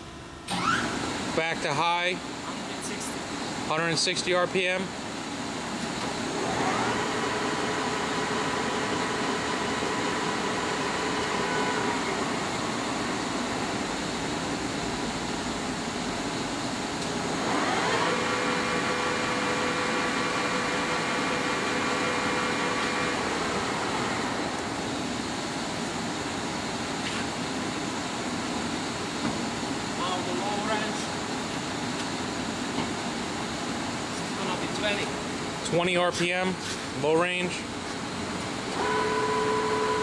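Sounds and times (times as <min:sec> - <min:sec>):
steady mechanical hum: 0:00.0 - 0:40.0
lathe spindle whining: 0:38.7 - 0:40.0.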